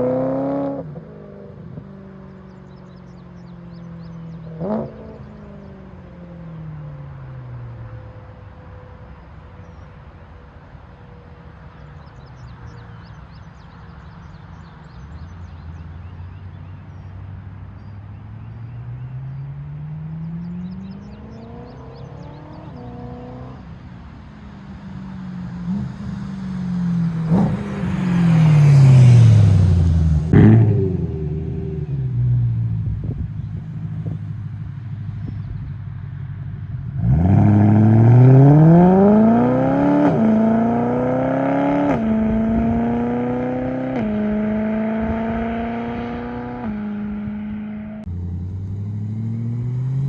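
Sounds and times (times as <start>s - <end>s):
car engine exhaust revving: 25.5s - 35.8s, 36.8s - 50.0s.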